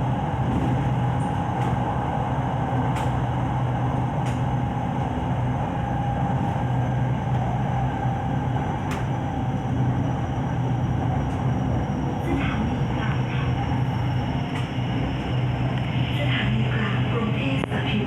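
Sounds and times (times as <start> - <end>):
electric train humming: 0.0 - 18.0.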